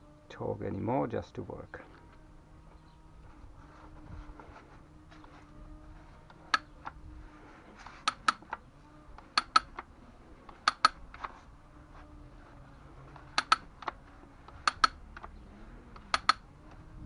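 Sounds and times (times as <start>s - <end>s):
ratchet clicking: 9.2s - 9.8s, 10.5s - 11.0s, 13.3s - 15.3s, 16.0s - 16.4s.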